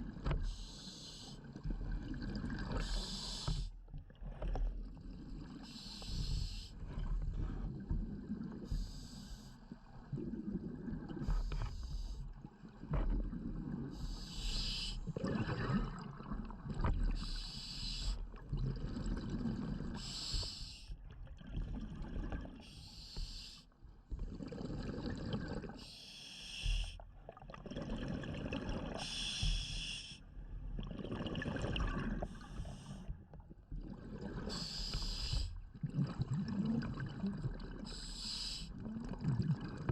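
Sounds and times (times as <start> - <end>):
exhaled air bubbling: 0.0 - 22.8, 24.0 - 26.0, 26.6 - 39.9
regulator inhalation hiss: 14.1 - 15.0, 17.2 - 18.2, 25.8 - 27.0, 29.0 - 30.2, 34.5 - 35.5, 37.9 - 38.7.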